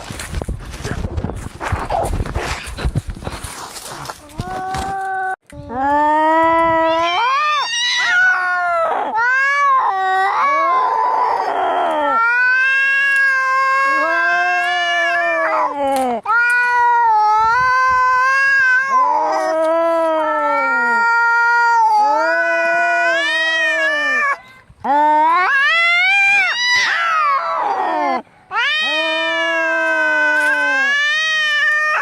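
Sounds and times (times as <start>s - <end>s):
cats yowling: 6.7s - 24.4s, 25.0s - 32.0s.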